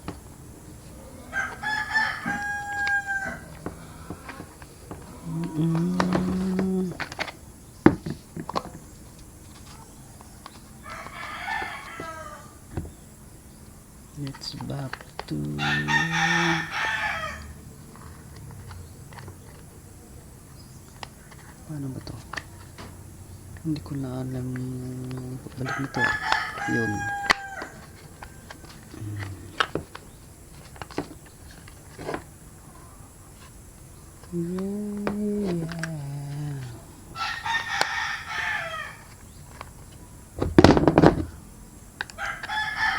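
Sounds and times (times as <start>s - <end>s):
rooster crowing: 0.2s - 7.2s, 9.6s - 13.0s, 15.3s - 20.3s, 24.5s - 30.1s, 32.4s - 39.6s, 42.1s - 42.9s.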